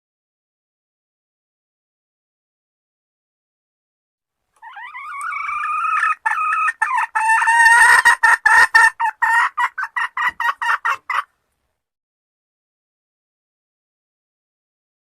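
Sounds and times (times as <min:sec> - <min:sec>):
junglefowl hen calling and clucking: 0:04.6 - 0:11.4.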